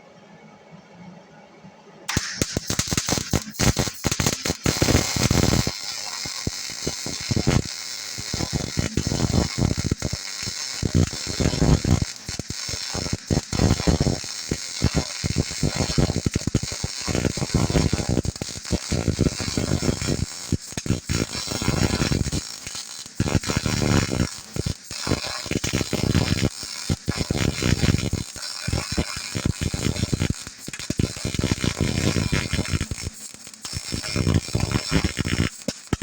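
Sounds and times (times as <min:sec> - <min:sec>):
welder arc crackling: 0:02.1 - 0:36.0.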